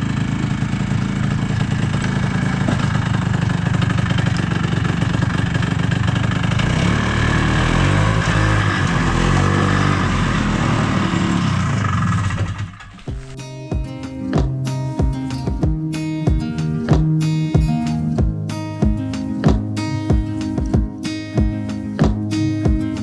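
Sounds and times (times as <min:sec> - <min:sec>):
snowmobile engine revving: 0:06.6 - 0:12.4
acoustic guitar music: 0:12.8 - 0:23.0.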